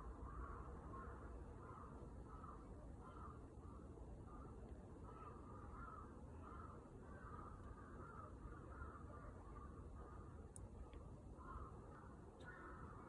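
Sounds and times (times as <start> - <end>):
crows cawing: 5.1 - 9.0, 11.4 - 11.8, 12.4 - 13.0.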